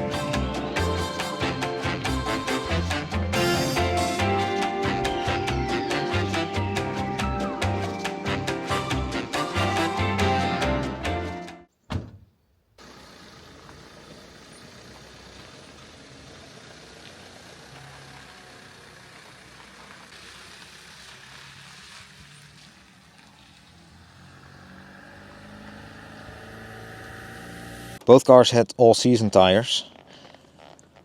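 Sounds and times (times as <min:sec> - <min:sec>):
car engine running: 0:12.8 - 0:22.5, 0:23.5 - 0:28.0.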